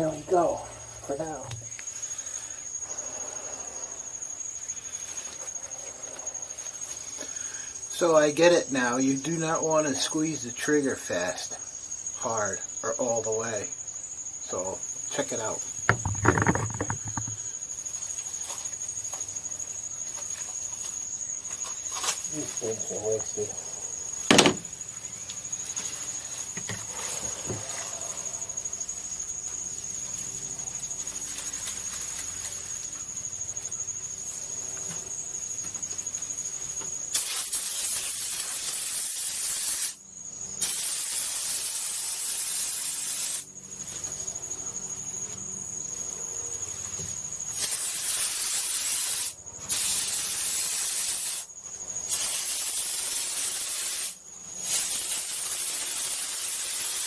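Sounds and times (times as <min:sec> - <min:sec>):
spray foam gun hissing: 0:24.3 - 0:24.6, 0:40.6 - 0:43.4, 0:47.6 - 0:51.5, 0:52.1 - 0:57.0.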